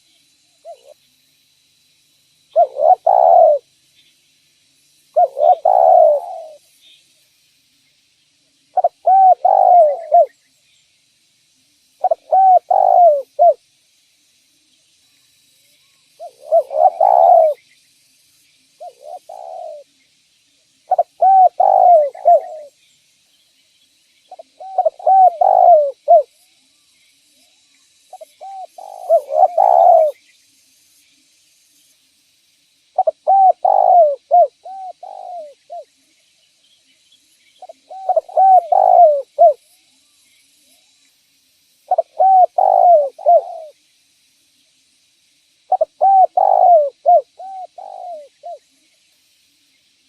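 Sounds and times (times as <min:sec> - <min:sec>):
dove cooing: 0:02.5 - 0:03.7, 0:05.1 - 0:06.6, 0:08.8 - 0:10.3, 0:12.0 - 0:13.6, 0:16.2 - 0:17.6, 0:18.8 - 0:19.9, 0:20.9 - 0:22.8, 0:24.3 - 0:26.3, 0:28.1 - 0:30.2, 0:33.0 - 0:35.9, 0:37.6 - 0:39.6, 0:41.9 - 0:43.8, 0:45.7 - 0:48.6.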